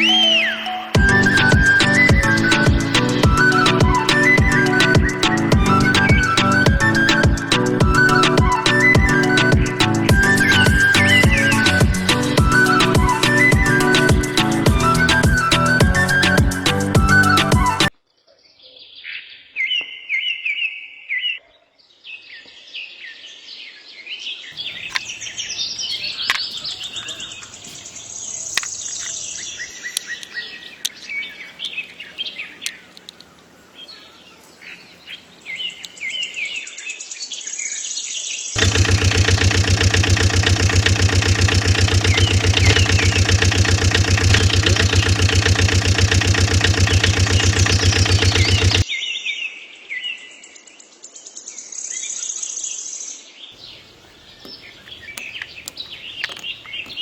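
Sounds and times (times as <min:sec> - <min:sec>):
birds chirping: 0:00.0 - 0:19.9, 0:24.4 - 0:37.7, 0:38.6 - 0:48.9, 0:53.6 - 0:57.0
sharp clicks: 0:38.6 - 0:48.8, 0:54.4 - 0:57.0
small motor humming: 0:38.6 - 0:48.8.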